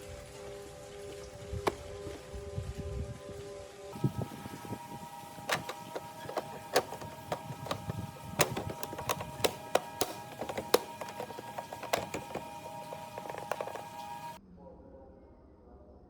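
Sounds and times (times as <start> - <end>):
sharp clicks and taps: 5.5 - 14.0.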